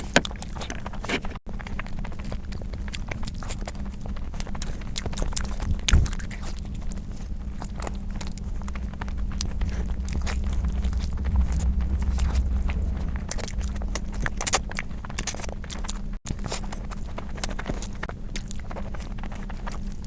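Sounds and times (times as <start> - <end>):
steady low hum: 0.0 - 20.0
chewing and mouth smacks: 0.2 - 9.5, 15.6 - 20.0
loud thump: 9.4 - 14.6.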